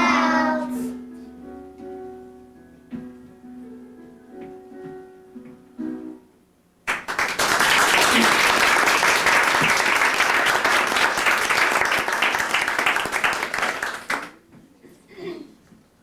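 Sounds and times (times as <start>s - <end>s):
audience applause: 6.9s - 14.4s.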